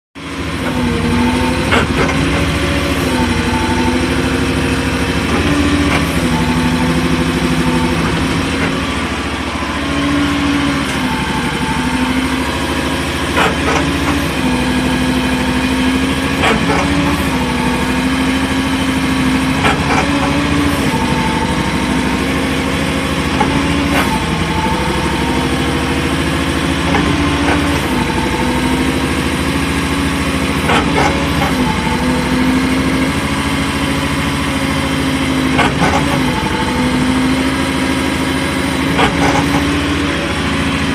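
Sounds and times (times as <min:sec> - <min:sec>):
mini excavator engine running: 0:00.2 - 0:40.9
grinding noise with sharp knock: 0:00.6 - 0:09.1, 0:13.1 - 0:15.0, 0:16.2 - 0:18.0, 0:18.7 - 0:33.3, 0:34.4 - 0:40.2.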